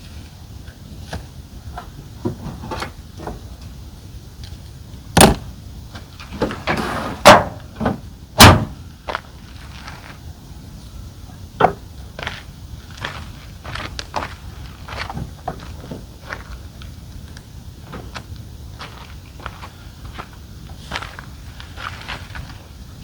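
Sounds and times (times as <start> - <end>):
loud thuds: 5.2 - 5.5, 6.3 - 8.8.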